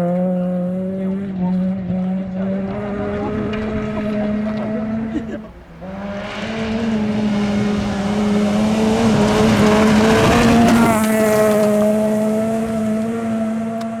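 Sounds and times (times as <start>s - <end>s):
rally car engine at high revs: 0.0s - 14.0s
tyre noise: 5.3s - 14.0s.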